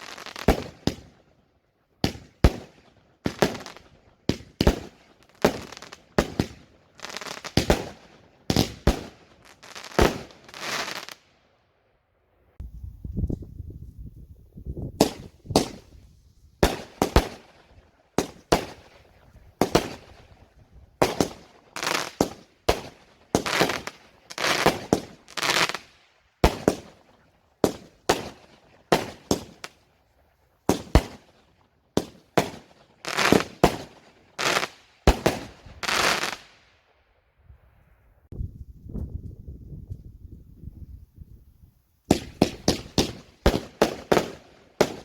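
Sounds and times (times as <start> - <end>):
fireworks bangs with crackling: 0.0 - 1.2, 2.0 - 11.2, 15.0 - 16.0, 16.6 - 29.8, 30.7 - 31.4, 32.0 - 36.6, 42.1 - 45.0.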